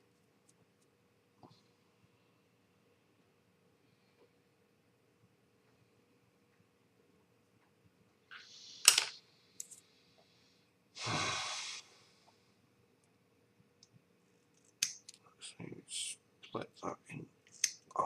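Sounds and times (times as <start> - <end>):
person sighing: 11.0 - 11.8.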